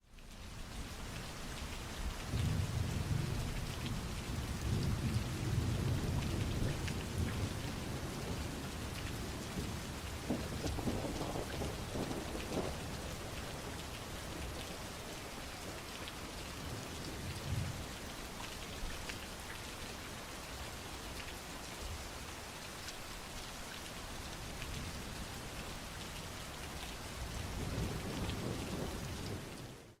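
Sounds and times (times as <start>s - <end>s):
heavy rain falling: 0.1s - 30.0s
crackling peal of thunder: 2.3s - 13.8s, 27.3s - 29.9s
thunder rumbling: 2.4s - 13.7s.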